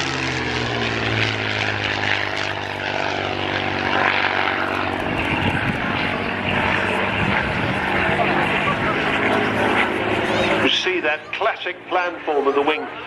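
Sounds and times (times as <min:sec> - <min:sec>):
propeller aircraft engine flying past: 0:00.0 - 0:13.0
propeller rasp: 0:00.0 - 0:13.0.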